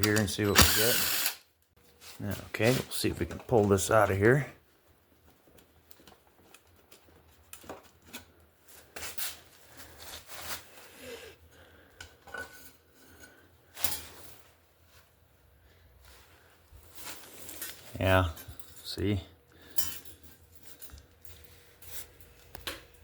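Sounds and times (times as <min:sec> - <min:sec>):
metal clinks and scrapes: 0:19.7 - 0:22.4.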